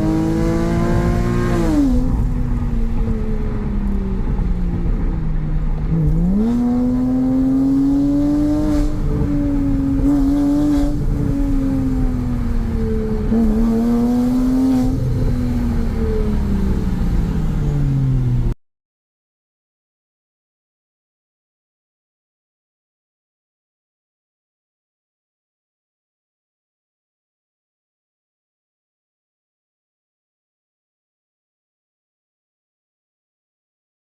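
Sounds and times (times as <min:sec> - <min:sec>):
sports car engine accelerating: 0:00.0 - 0:18.6.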